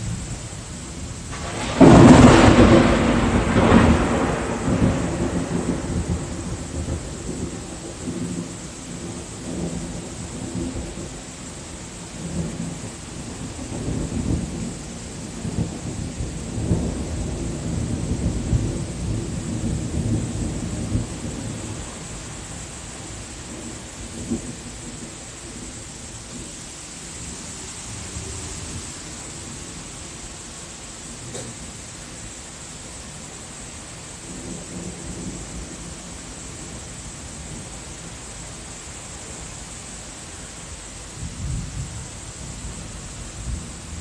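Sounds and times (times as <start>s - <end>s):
thunder crack and rumble: 0.0s - 26.5s, 31.2s - 31.8s, 34.2s - 38.0s, 41.1s - 44.0s.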